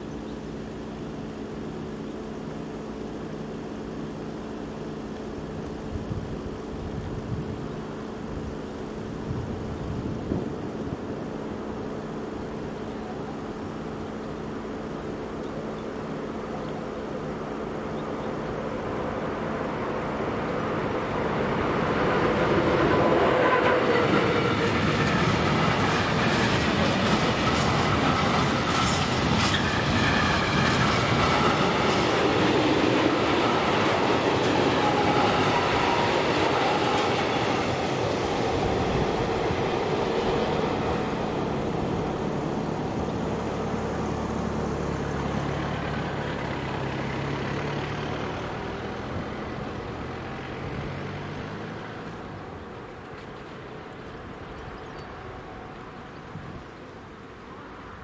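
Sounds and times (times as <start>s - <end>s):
train wheels clattering on rails: 21.8s - 49.7s.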